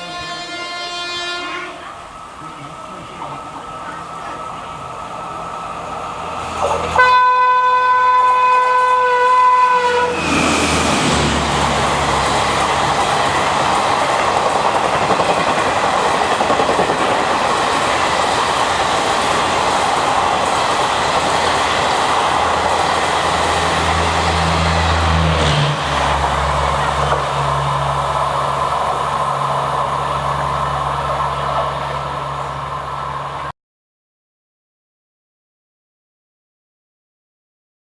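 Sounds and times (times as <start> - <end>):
locomotive horn blast: 0.0 - 2.0, 6.9 - 10.3
train passing at speed: 0.0 - 33.5.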